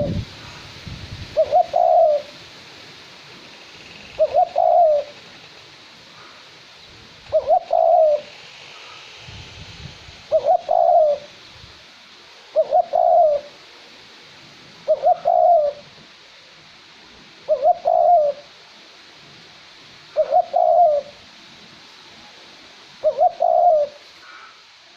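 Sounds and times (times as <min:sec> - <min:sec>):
dove cooing: 0:00.0 - 0:00.2, 0:01.4 - 0:02.3, 0:04.1 - 0:05.4, 0:07.3 - 0:09.0, 0:10.3 - 0:11.4, 0:12.5 - 0:13.6, 0:14.8 - 0:16.0, 0:17.5 - 0:18.6, 0:20.1 - 0:21.2, 0:23.0 - 0:24.6
light wind hissing: 0:00.0 - 0:24.9.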